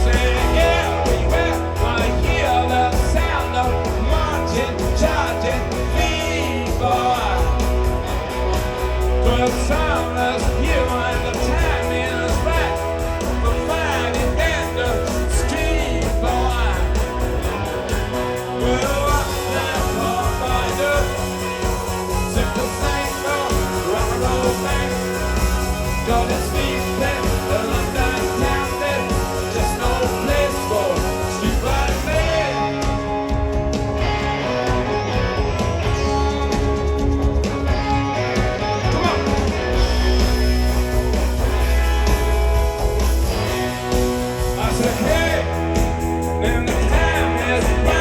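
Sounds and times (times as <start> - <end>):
rock band playing live: 0.0 - 48.0
person singing: 18.2 - 33.1, 46.3 - 48.0.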